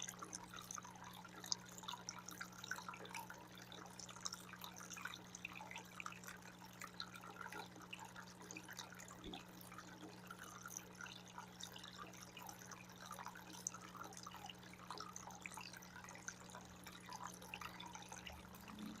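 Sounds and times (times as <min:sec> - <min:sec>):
fountain water trickling and dripping: 0:00.0 - 0:19.0
steady low hum: 0:12.0 - 0:19.0.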